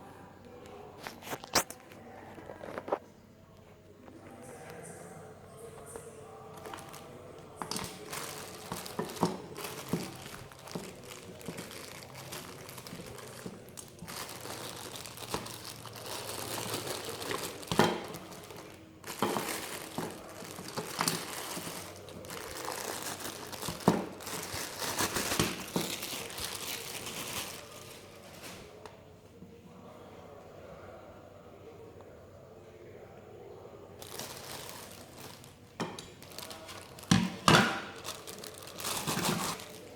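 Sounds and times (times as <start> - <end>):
packaging crinkling and rustling: 6.4 - 28.9, 34.0 - 39.9.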